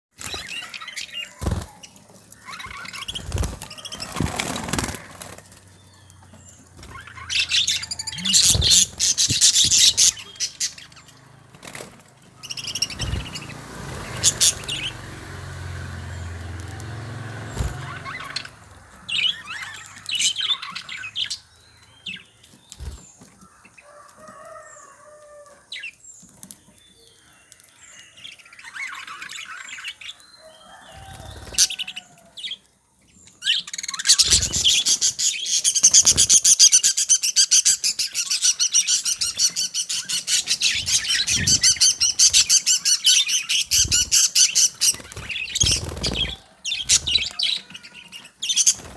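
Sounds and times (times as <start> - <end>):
wings flapping: 0.2 - 5.8, 6.7 - 21.1, 22.7 - 23.3, 30.7 - 32.0, 33.9 - 36.9, 37.9 - 48.9
budgerigars chirping: 0.2 - 11.2, 12.4 - 15.0, 17.4 - 22.3, 33.2 - 48.9.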